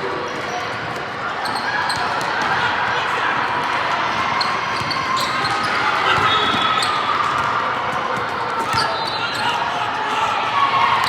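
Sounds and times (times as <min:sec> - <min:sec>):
spectators chatting: 0:00.0 - 0:11.0
shoe squeaks: 0:04.8 - 0:07.1, 0:08.7 - 0:09.6.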